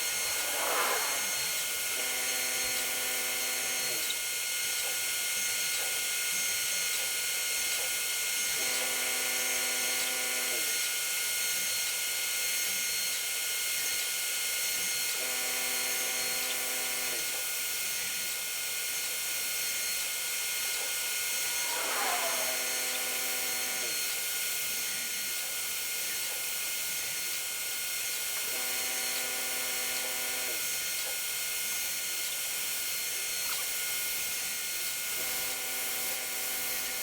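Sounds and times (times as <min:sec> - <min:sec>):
router spindle whine: 0:00.0 - 0:37.0
low motor hum: 0:20.8 - 0:23.9.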